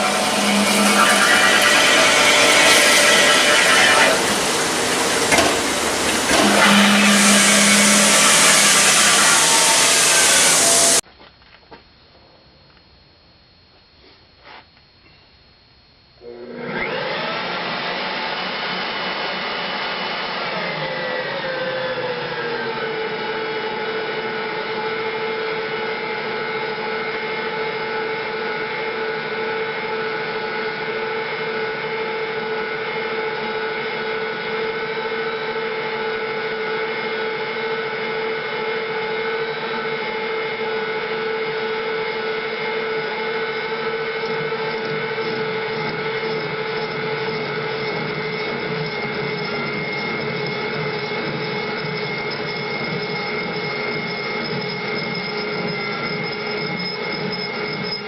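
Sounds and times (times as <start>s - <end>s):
machine tool whining: 0.0s - 11.0s, 41.5s - 58.0s.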